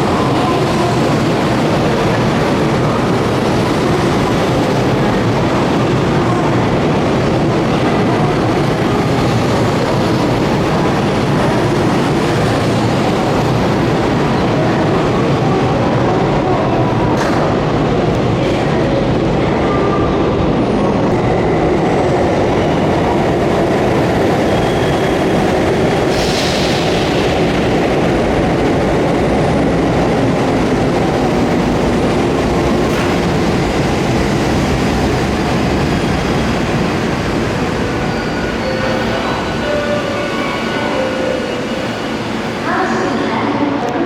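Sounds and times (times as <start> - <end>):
train wheels rumbling on rail: 0.0 - 44.0.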